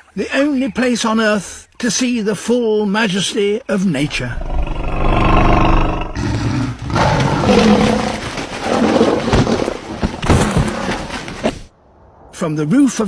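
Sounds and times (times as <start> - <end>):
deep animal roaring: 4.0 - 9.7.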